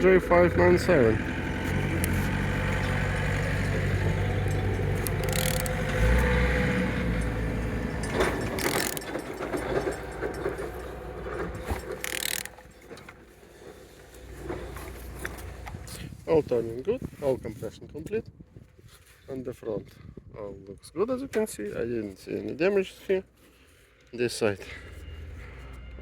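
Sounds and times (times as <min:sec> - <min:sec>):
engine clicking and ratcheting: 0:00.0 - 0:16.0
steady low hum: 0:00.0 - 0:16.3.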